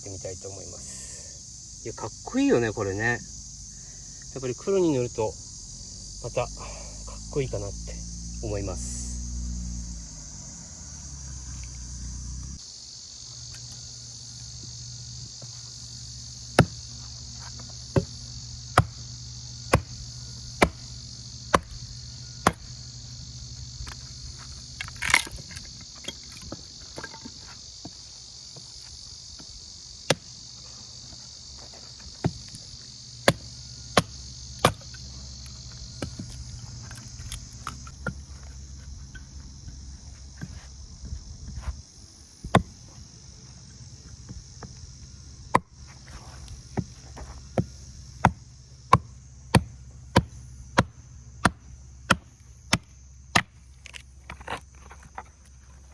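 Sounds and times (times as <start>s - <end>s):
crickets chirring: 0.0s - 55.9s
sharp knocks: 18.8s - 19.0s, 20.6s - 20.9s.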